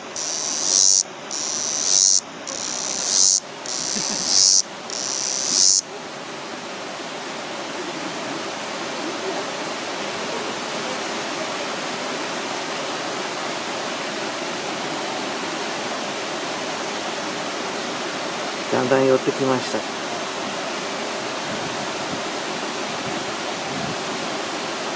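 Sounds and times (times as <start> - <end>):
cicada buzzing: 0.0 - 5.8.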